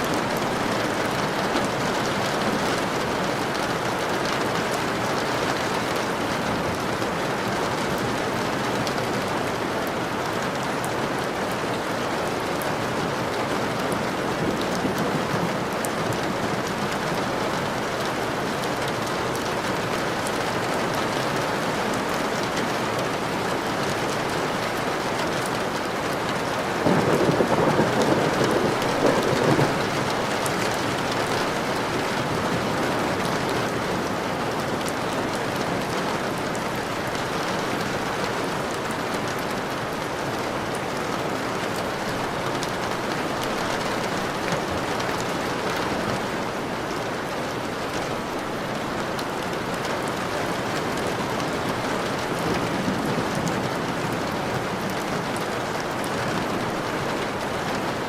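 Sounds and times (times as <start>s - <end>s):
steady rain falling: 0.0s - 58.0s
thunder rolling: 26.7s - 33.9s.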